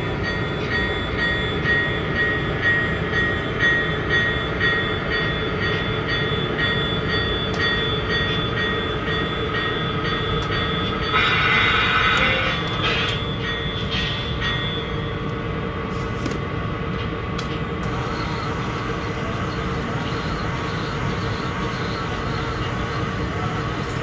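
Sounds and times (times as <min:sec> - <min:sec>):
model diesel locomotive engine: 0:00.0 - 0:24.0
wheel noise on track: 0:15.2 - 0:24.0.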